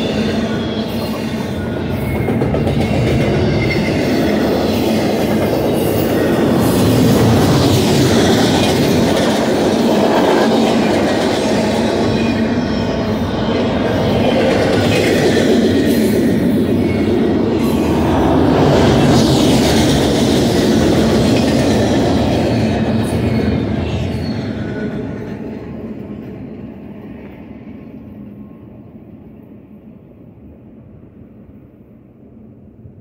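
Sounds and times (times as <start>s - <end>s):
freight train rolling on rails: 0.0s - 33.0s.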